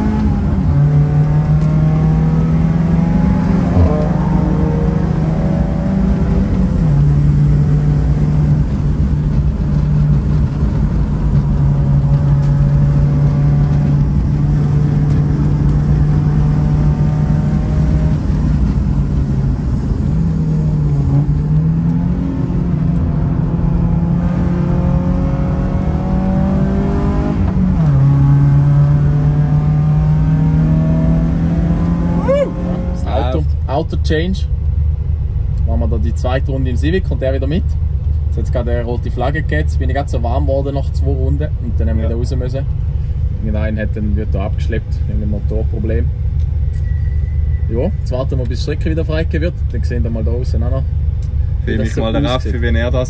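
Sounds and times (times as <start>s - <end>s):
race car engine revving: 0.0s - 33.3s.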